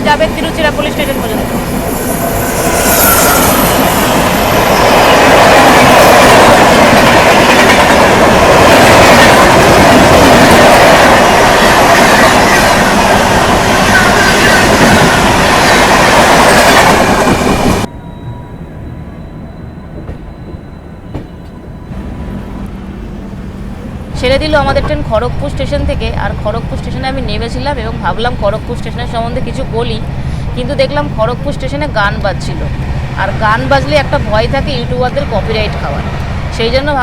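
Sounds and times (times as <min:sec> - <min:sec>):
train rushing past: 0:00.0 - 0:37.0
wheel squeal: 0:01.8 - 0:04.9.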